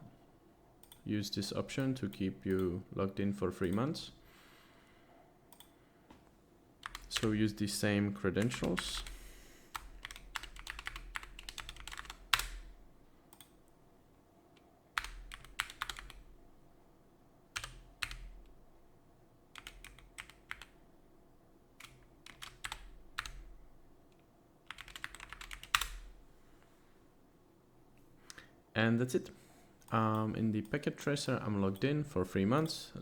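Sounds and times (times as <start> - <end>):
keyboard typing: 6.8 - 7.4, 8.4 - 12.7, 15.0 - 16.3, 17.6 - 18.5, 19.5 - 20.8, 21.8 - 23.6, 24.7 - 26.1.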